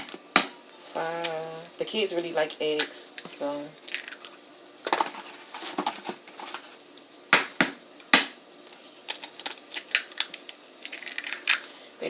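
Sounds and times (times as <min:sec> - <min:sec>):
eggshell cracking against bowl: 0:03.8 - 0:04.4, 0:09.0 - 0:11.7.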